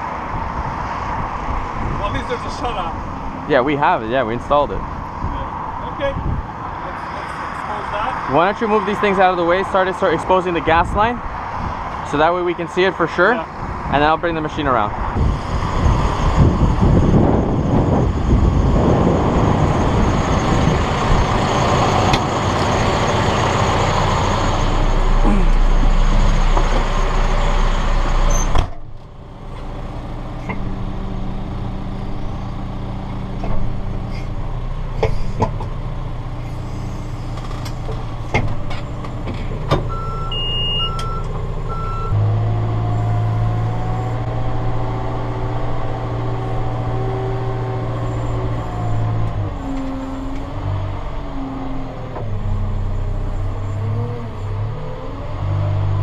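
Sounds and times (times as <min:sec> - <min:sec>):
diesel engine of digging machine: 0:14.9 - 0:56.0
short beeps: 0:39.9 - 0:42.2.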